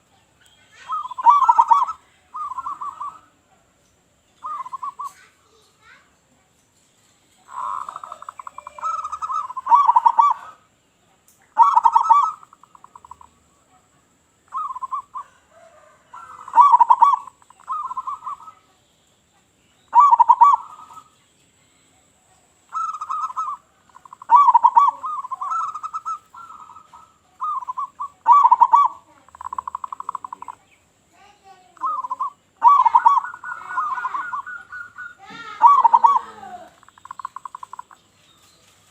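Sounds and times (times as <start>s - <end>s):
dove cooing: 0.8s - 3.4s, 4.4s - 5.3s, 7.4s - 10.7s, 11.5s - 13.4s, 14.5s - 18.7s, 19.9s - 21.2s, 22.6s - 30.7s, 31.4s - 38.0s.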